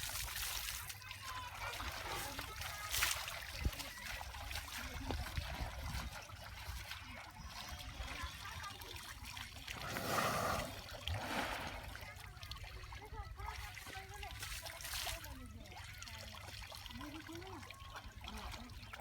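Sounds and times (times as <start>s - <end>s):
rush of water: 0.0s - 16.3s
water splashing and trickling: 0.0s - 19.0s.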